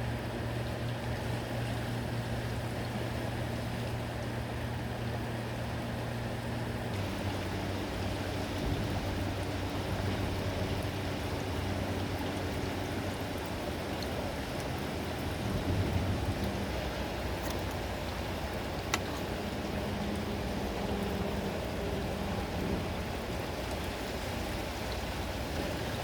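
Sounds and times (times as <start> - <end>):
garbage truck engine humming: 6.7 - 26.0.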